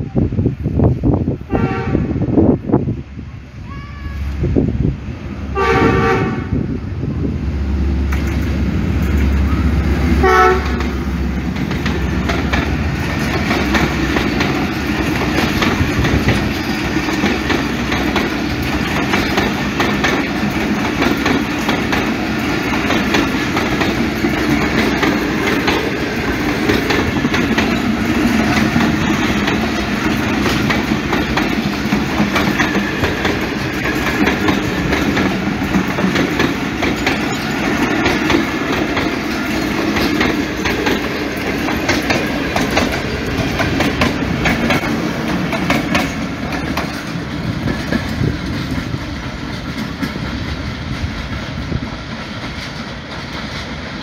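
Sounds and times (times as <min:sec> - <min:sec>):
locomotive engine rumbling: 0:00.0 - 0:54.0
locomotive horn blasts: 0:01.5 - 0:02.2, 0:05.5 - 0:06.7, 0:09.6 - 0:11.0
train wheels clickety-clack: 0:08.0 - 0:54.0.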